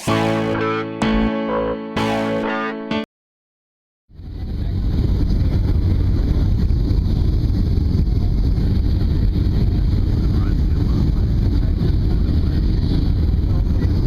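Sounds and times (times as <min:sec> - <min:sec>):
airplane cabin rumble: 0:04.2 - 0:14.0.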